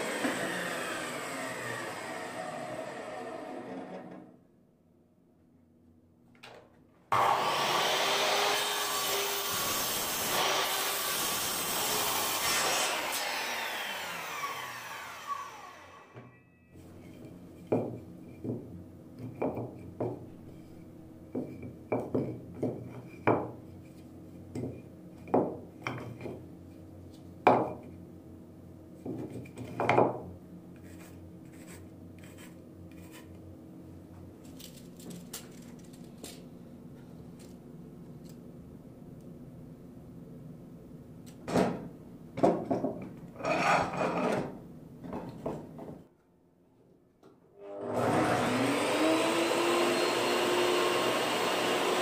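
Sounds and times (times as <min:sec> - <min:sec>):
mitre saw cutting wood: 0:00.0 - 0:04.2, 0:07.1 - 0:16.2, 0:47.6 - 0:52.0.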